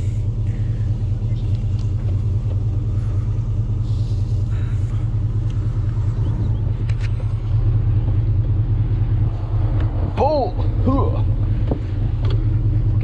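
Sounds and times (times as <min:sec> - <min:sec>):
engine idling low rumble: 0:00.0 - 0:13.0.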